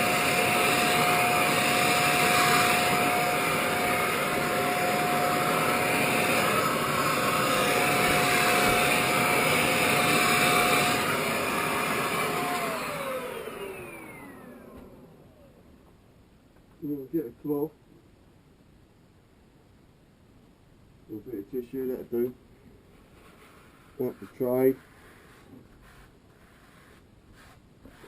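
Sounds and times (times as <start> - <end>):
vacuum motor winding down: 0.0 - 15.5
vacuum cleaner whining: 0.0 - 15.6.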